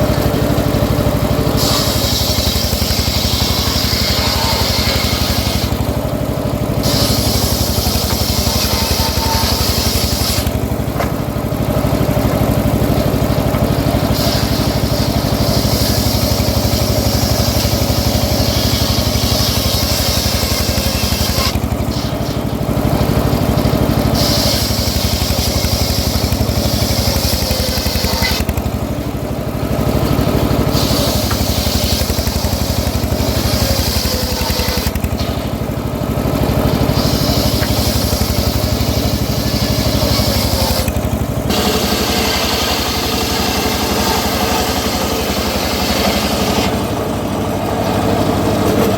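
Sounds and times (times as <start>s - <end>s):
sawmill engine running: 0.0s - 48.9s
saw hissing through log: 0.9s - 11.0s, 13.2s - 28.9s, 29.9s - 48.9s.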